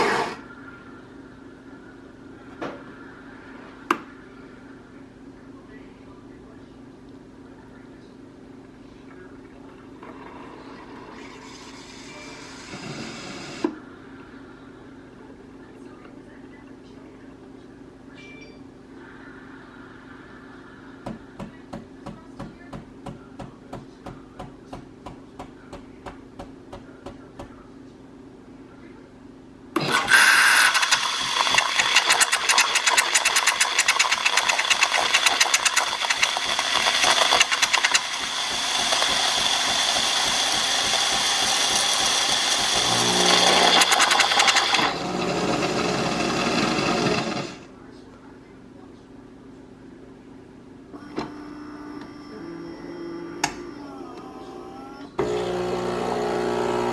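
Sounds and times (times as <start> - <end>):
espresso machine running: 0.0 - 0.5, 10.2 - 13.7, 29.8 - 47.6, 55.2 - 56.9
espresso machine clicking: 29.9 - 44.8.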